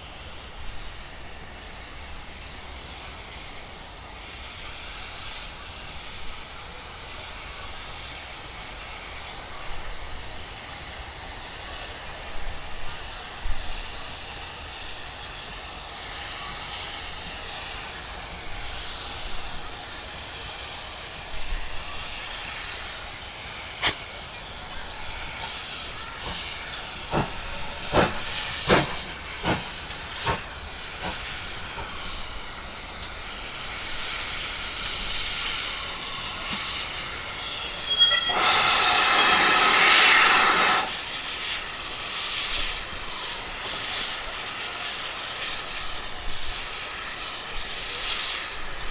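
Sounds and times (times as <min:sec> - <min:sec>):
loud burst of hiss: 0:13.0 - 0:48.9
train wheels clicking over rail joints: 0:22.4 - 0:44.8
brief high tone: 0:37.8 - 0:39.3.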